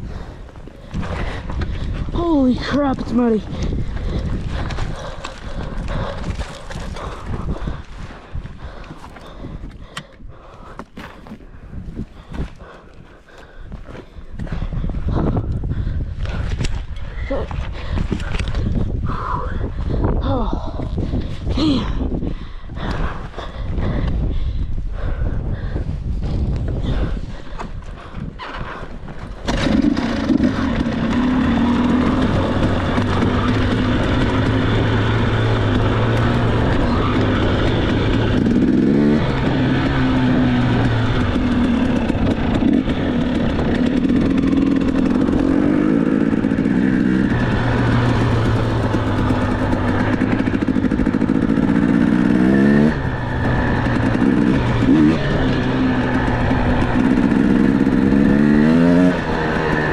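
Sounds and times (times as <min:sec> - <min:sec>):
dirt bike engine revving: 0:28.4 - 0:59.9.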